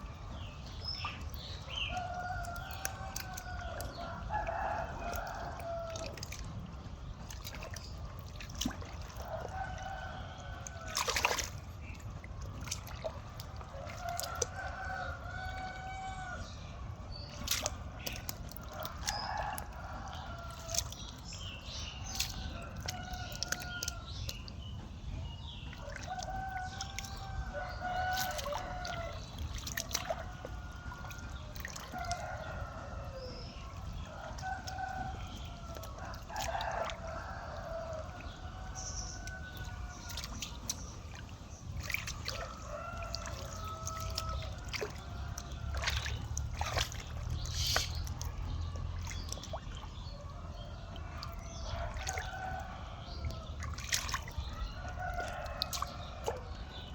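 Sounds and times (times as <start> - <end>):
roosters crowing: 25.8 - 29.4, 30.1 - 40.6, 50.4 - 53.6, 54.3 - 56.8.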